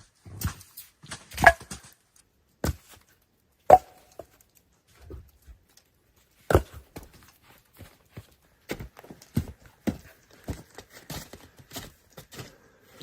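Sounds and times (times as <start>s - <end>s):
ice chopping strikes: 3.7s - 4.2s.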